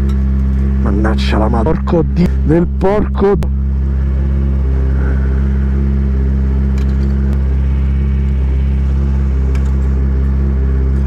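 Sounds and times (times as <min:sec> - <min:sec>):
motorcycle engine idling: 0:03.4 - 0:11.0.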